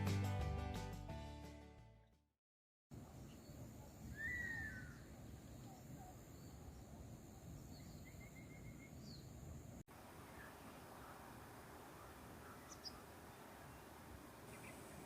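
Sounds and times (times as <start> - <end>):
birds calling: 11.9 - 15.0.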